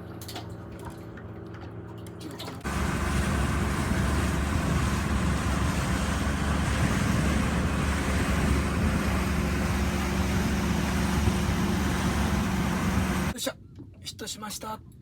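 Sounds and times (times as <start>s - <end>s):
outboard motor running: 0.0s - 13.4s
water on a hull: 0.0s - 14.0s
wind: 0.0s - 15.0s.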